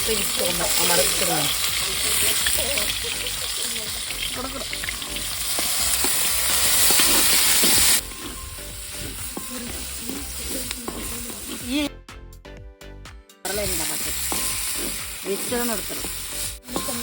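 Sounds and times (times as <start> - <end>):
onions sizzling in hot oil: 0.0 - 11.9, 13.5 - 17.0
stirring scrape: 4.9 - 11.9, 14.2 - 17.0.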